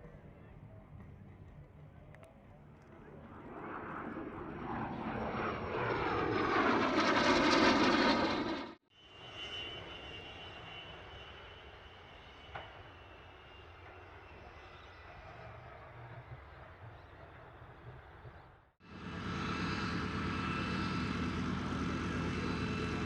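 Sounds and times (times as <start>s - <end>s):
aircraft engine passing close: 0.0s - 23.0s
steady aircraft engine with whine: 0.0s - 23.0s.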